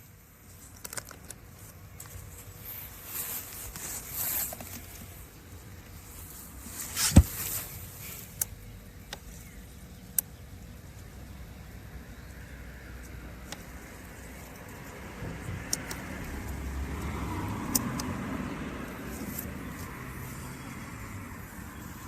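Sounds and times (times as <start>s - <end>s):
rustling: 0.4s - 8.4s
scattered clicks: 15.7s - 18.2s.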